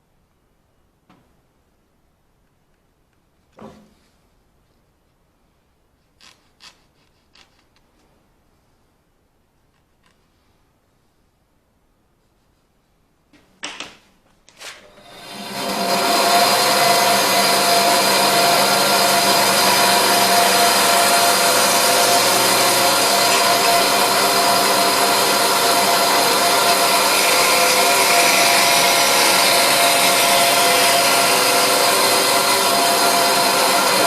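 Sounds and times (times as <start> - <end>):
power tool whirring: 14.7 - 34.0.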